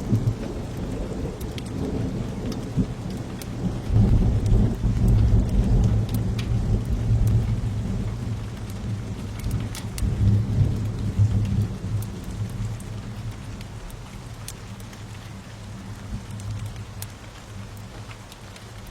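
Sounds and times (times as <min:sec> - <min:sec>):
rolling thunder rumble: 0:00.0 - 0:14.4
steady rain: 0:00.0 - 0:18.9
wood fire crackling: 0:00.2 - 0:18.9.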